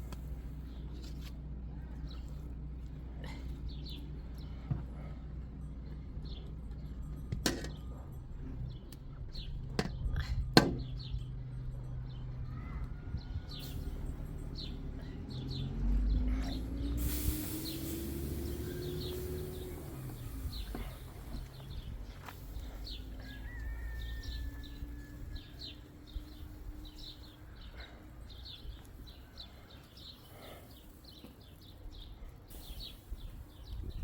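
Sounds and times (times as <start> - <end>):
small birds chirping: 0.0 - 34.0
sharp knocks: 10.6 - 10.9
steady hiss: 17.0 - 21.8.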